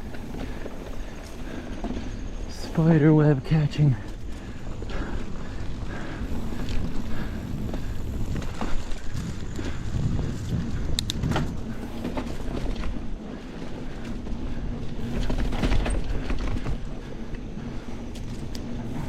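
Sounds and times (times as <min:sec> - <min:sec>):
bike clicks and rattles: 0:00.0 - 0:03.0, 0:03.8 - 0:19.0
tyres hissing on dirt: 0:00.0 - 0:10.8
wind rumbling on microphone: 0:00.0 - 0:19.0.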